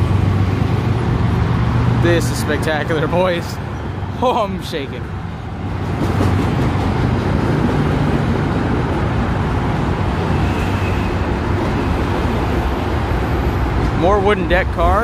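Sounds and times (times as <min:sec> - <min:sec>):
train wheels rumbling on rails: 0:05.3 - 0:15.0.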